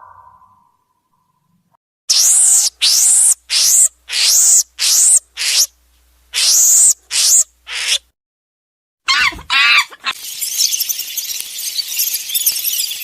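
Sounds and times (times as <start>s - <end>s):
harsh screeching animal calls: 2.1s - 5.7s, 6.3s - 8.0s, 9.1s - 10.6s.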